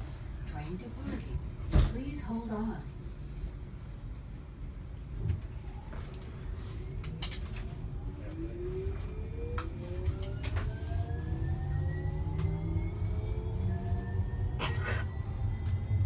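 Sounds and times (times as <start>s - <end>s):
train rumble: 0.0s - 16.0s
electric traction drive whine: 8.0s - 16.0s.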